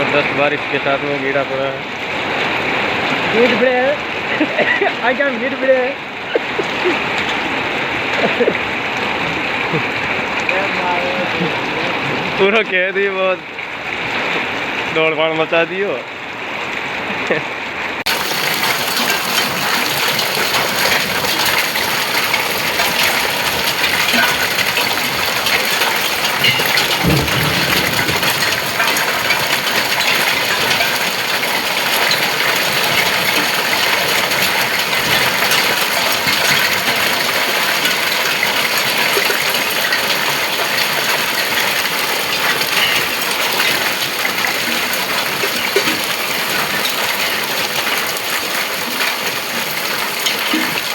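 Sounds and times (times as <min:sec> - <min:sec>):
heavy rain downpour: 0:00.0 - 0:50.9
hailstones striking: 0:18.1 - 0:50.9.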